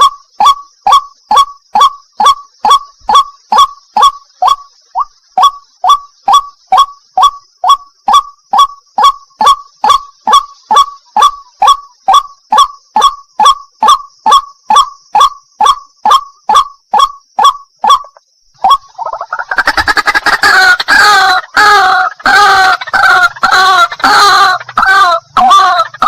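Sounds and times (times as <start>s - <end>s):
bird honking calls: 15.2s - 26.0s.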